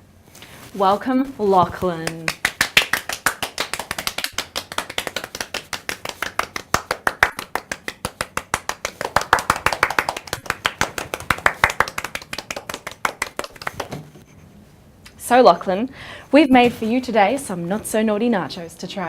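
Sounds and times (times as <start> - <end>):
people clapping: 2.0 - 14.1.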